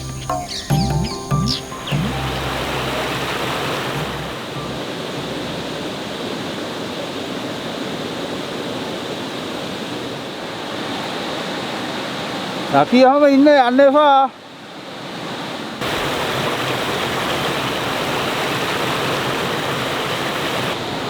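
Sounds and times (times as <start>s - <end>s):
steady rainfall: 1.6s - 8.8s, 15.7s - 21.0s.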